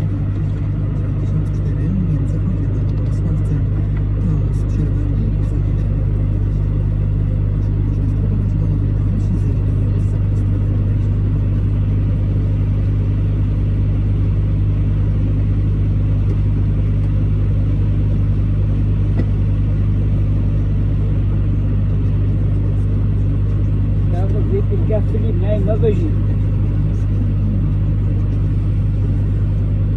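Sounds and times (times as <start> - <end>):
truck engine drone: 0.0 - 29.9
road noise: 11.8 - 29.9.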